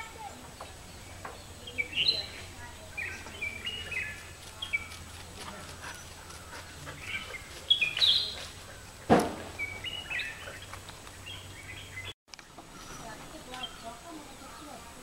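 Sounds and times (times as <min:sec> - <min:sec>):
bird chirping: 0:00.0 - 0:15.0
loud knock: 0:09.1 - 0:09.6.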